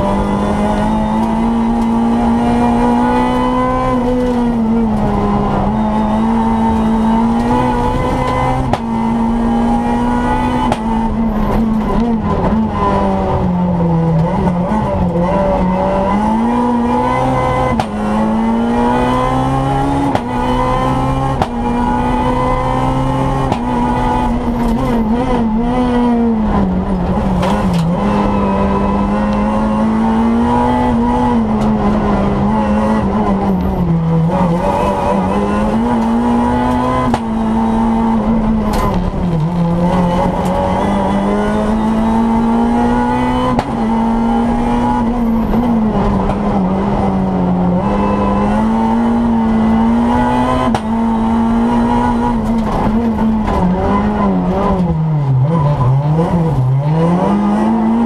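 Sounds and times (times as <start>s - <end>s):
rally car engine driven hard: 0.0s - 58.0s.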